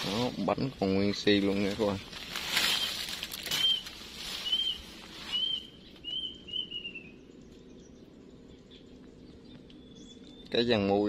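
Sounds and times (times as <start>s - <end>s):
small bird chirping: 2.6s - 11.0s.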